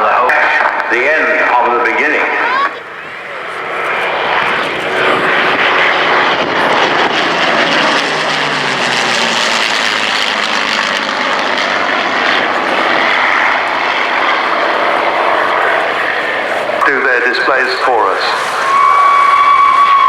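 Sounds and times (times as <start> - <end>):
propeller plane engine flying past: 0.0 - 20.0.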